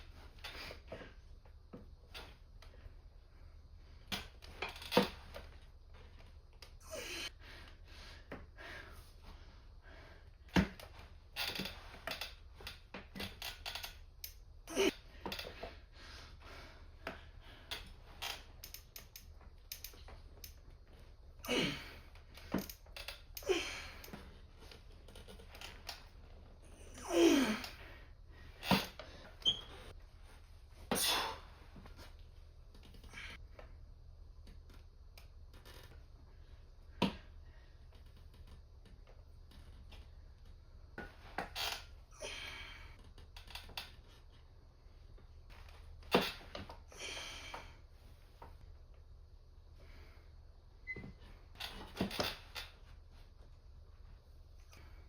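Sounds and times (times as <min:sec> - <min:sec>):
gym equipment clicks and knocks: 0:04.1 - 0:06.8, 0:10.5 - 0:14.4, 0:22.2 - 0:26.2, 0:45.6 - 0:46.9, 0:50.9 - 0:52.9.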